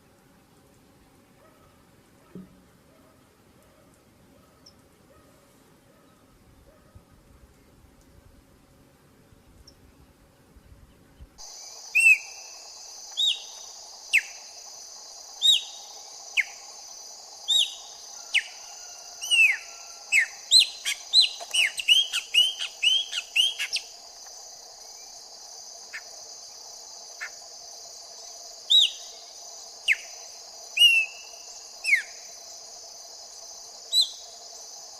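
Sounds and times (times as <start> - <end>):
insect drone: 0.0 - 34.9
songbird whistling: 11.8 - 14.5, 15.4 - 16.7, 17.4 - 18.6, 19.2 - 23.9, 28.7 - 29.2, 29.8 - 32.2, 33.9 - 34.2.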